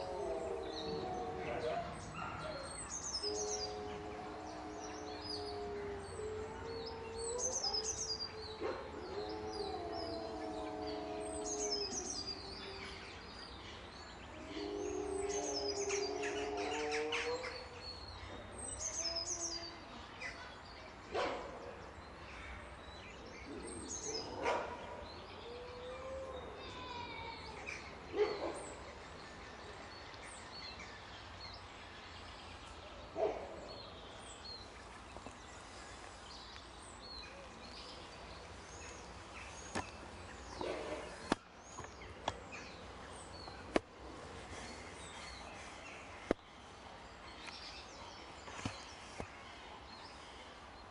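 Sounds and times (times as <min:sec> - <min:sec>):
wolves howling: 0:00.0 - 0:13.3, 0:14.4 - 0:19.8, 0:23.4 - 0:28.6
small birds chirping: 0:23.0 - 0:50.9.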